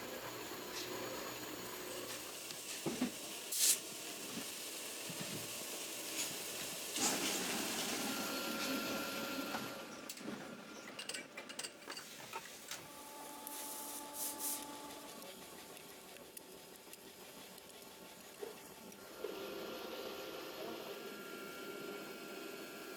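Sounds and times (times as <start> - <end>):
machinery hiss: 0.7 - 9.9, 12.9 - 20.4.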